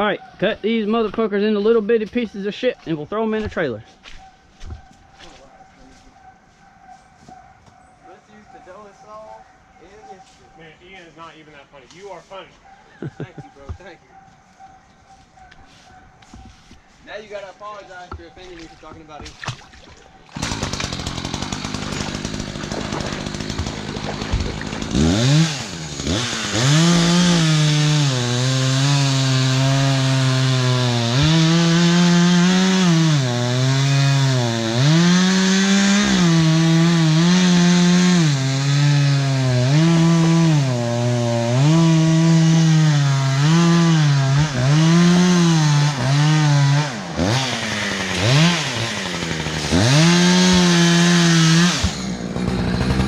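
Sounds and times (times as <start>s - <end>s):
chainsaw cutting wood: 20.3s - 53.0s.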